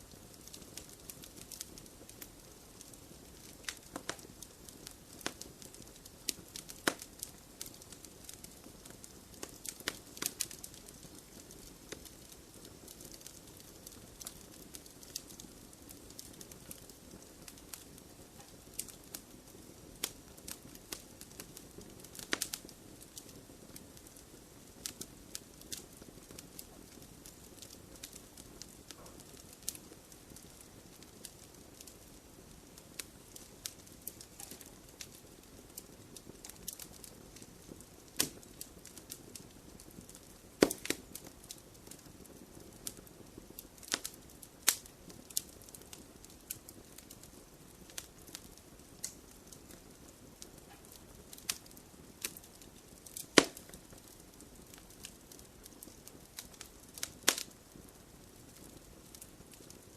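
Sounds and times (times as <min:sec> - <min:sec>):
wood snapping and popping: 0:40.2 - 0:41.2, 0:52.2 - 0:53.8, 0:56.3 - 0:57.5.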